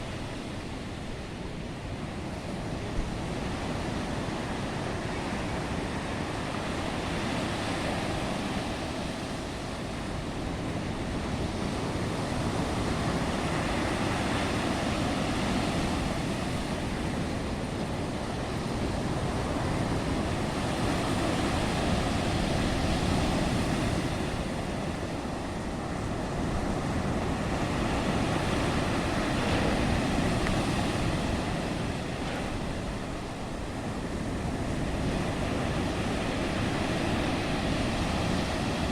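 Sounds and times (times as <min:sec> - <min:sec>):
waves breaking on shore: 0:00.0 - 0:38.9
wind buffeting microphone: 0:00.0 - 0:38.9.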